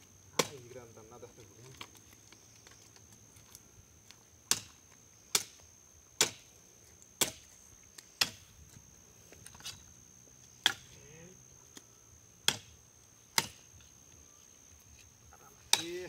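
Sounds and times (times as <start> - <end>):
wood being chopped: 0.4 - 0.7, 4.5 - 5.6, 6.2 - 6.5, 7.2 - 8.5, 10.6 - 11.0, 12.4 - 13.7, 15.6 - 16.0.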